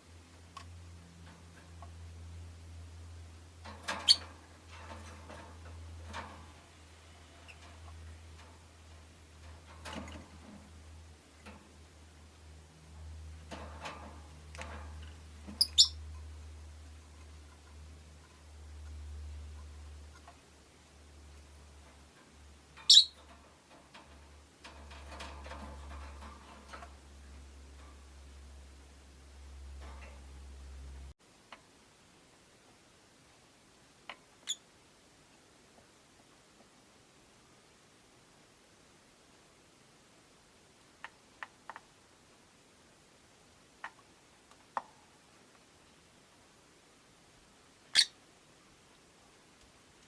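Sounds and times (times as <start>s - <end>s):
steady low hum: 0.0s - 34.1s
lovebirds chirping and clicking: 3.9s - 4.4s, 14.5s - 16.2s, 22.8s - 23.4s, 48.0s - 48.2s
lovebird chirp: 4.0s - 4.3s, 15.6s - 16.0s, 22.8s - 23.2s, 34.4s - 34.6s, 47.9s - 48.2s.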